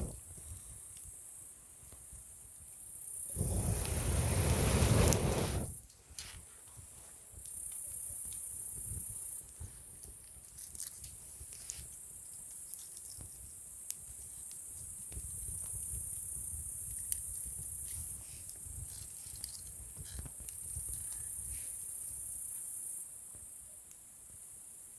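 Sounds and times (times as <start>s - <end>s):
low rumble of fire: 3.2s - 5.9s
campfire crackling and popping: 3.3s - 5.9s, 7.4s - 21.1s.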